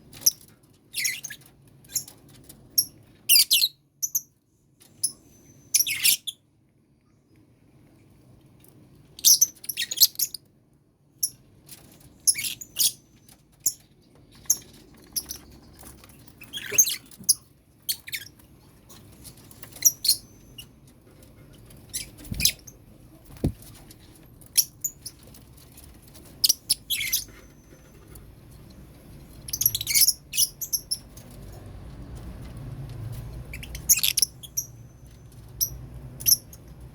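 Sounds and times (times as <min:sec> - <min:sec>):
lovebirds chirping and screeching: 0:09.2 - 0:10.4, 0:12.2 - 0:20.7, 0:21.8 - 0:22.8, 0:26.2 - 0:28.0, 0:29.3 - 0:31.4, 0:33.3 - 0:36.7.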